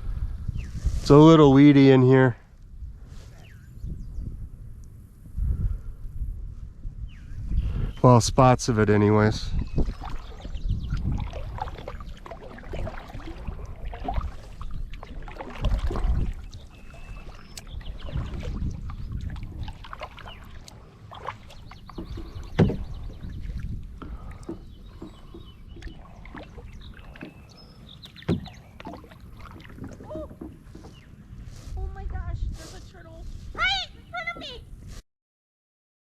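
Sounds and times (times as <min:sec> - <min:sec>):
paddle strokes splashing in water: 0:09.5 - 0:35.0.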